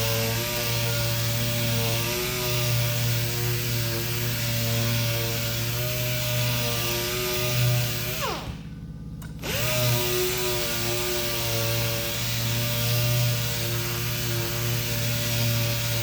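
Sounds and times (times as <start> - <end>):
electric power sander running: 0.0 - 16.0.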